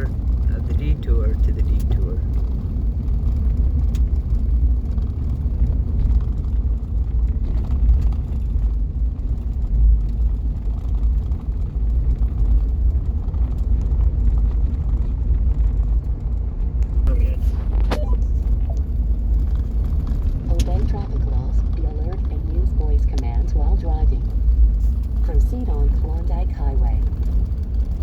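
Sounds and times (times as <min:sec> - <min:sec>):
vehicle driving from inside cabin: 0:00.0 - 0:28.0.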